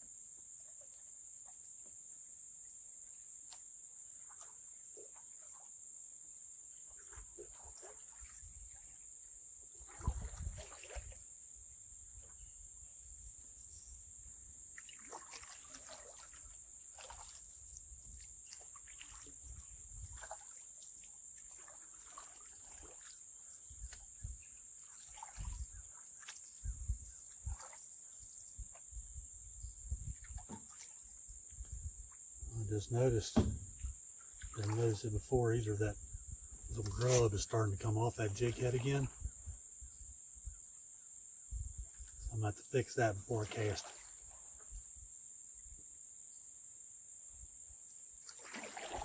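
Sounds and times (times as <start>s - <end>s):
high-pitched insect chorus: 0.0s - 49.0s
water swishing off paddle: 9.7s - 11.3s, 14.8s - 28.0s, 32.0s - 35.8s, 42.9s - 44.4s, 48.2s - 49.0s
knocks on canoe hull: 33.2s - 34.0s.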